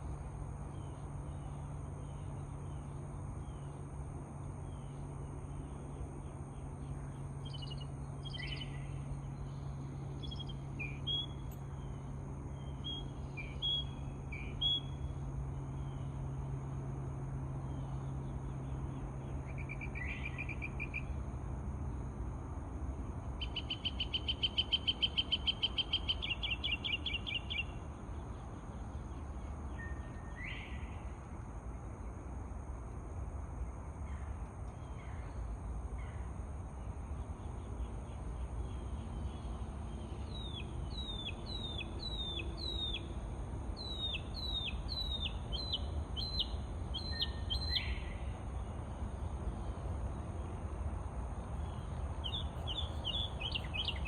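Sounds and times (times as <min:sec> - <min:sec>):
steady low hum: 0:00.0 - 0:54.0
birds chirping and whistling: 0:43.8 - 0:48.2, 0:52.2 - 0:54.0
fast bird trill: 0:52.2 - 0:54.0.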